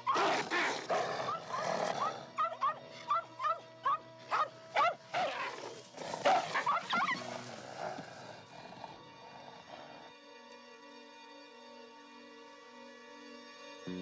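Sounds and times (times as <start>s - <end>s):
dog yelping barks: 0.0s - 7.5s
background music: 0.0s - 14.0s.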